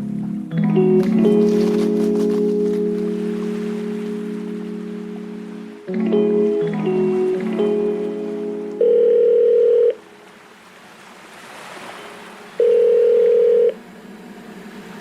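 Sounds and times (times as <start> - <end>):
soft rushing wash: 1.3 - 15.0
electronic held tones: 5.9 - 10.0, 12.6 - 13.8.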